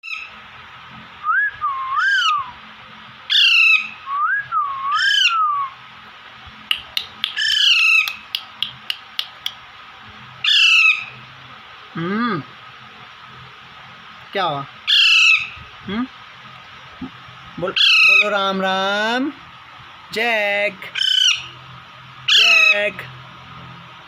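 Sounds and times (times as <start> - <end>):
whistled bird notes: 1.2 - 2.6, 3.3 - 5.8, 7.0 - 9.0
parakeets squawking: 2.0 - 2.5, 3.3 - 4.0, 4.9 - 5.5, 6.8 - 9.5, 10.4 - 11.3, 14.8 - 15.7, 17.6 - 19.0, 20.2 - 21.6, 22.2 - 23.1
sharp bird clicks: 6.7 - 9.6.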